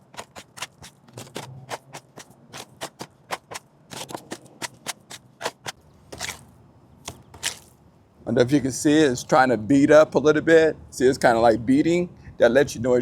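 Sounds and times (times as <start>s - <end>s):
tool scraping cement in container: 0.0s - 6.4s.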